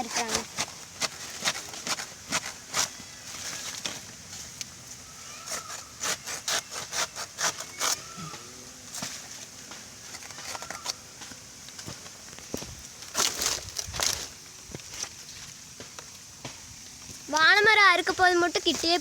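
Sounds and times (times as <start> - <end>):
blade chopping plant trunk: 0.0 - 3.0.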